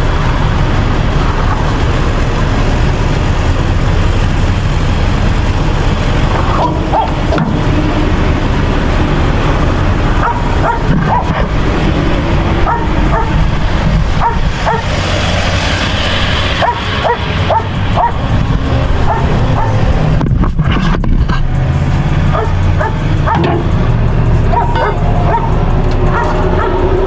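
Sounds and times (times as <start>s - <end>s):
low engine rumble: 0.0s - 27.0s
dog yipping and barking: 6.6s - 7.3s, 10.2s - 11.5s, 12.6s - 13.5s, 14.2s - 14.9s, 16.6s - 18.2s, 19.0s - 19.9s, 22.3s - 23.6s, 24.5s - 26.9s.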